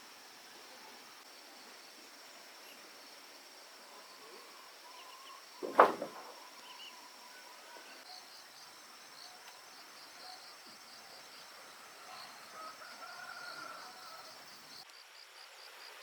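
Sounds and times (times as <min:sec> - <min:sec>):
crickets chirping: 0:00.0 - 0:16.0
sharp knock: 0:05.6 - 0:06.4.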